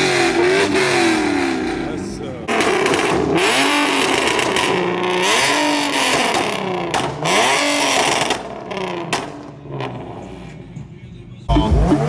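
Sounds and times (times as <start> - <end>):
car engine revving: 0.0 - 10.6, 11.4 - 12.0.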